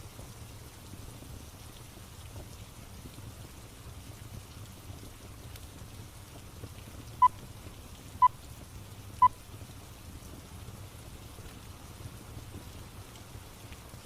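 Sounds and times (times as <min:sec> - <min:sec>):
steady rain: 0:00.0 - 0:08.2, 0:09.9 - 0:14.0.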